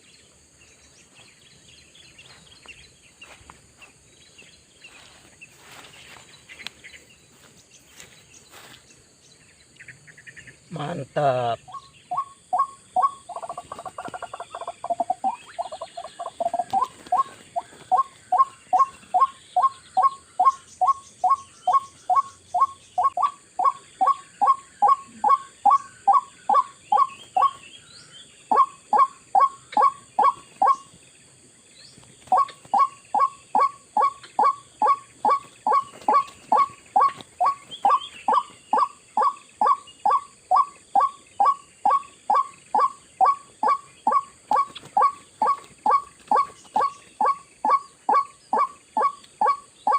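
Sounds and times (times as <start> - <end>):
high insect drone: 0.0 - 49.9
waterhen calling: 11.4 - 20.5, 32.3 - 49.9.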